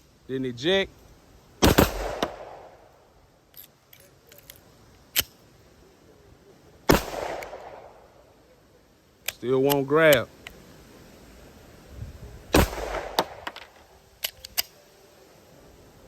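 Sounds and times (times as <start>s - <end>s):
pistol shots ringing out: 1.6s - 2.8s, 6.9s - 8.0s, 12.5s - 13.6s
sharp crack: 1.6s - 5.4s, 6.9s - 8.2s, 12.5s - 14.8s
light clicks: 13.5s - 14.8s.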